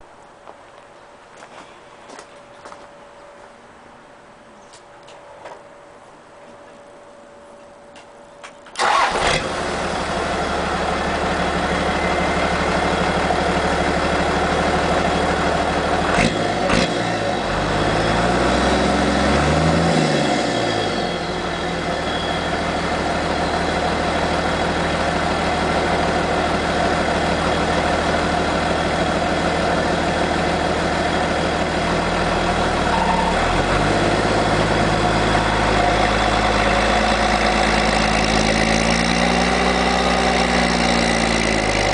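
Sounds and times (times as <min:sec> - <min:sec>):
diesel engine starting and idling: 0:08.7 - 0:41.9
engine revving: 0:08.8 - 0:10.8, 0:16.0 - 0:22.2, 0:33.0 - 0:41.9.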